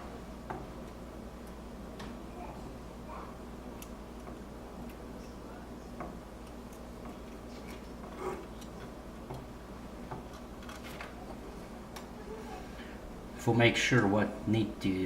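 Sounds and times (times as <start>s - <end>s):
steady low hum: 0.0s - 15.0s
desoldering clicks and taps: 0.4s - 2.2s, 3.8s - 5.0s, 6.0s - 11.1s.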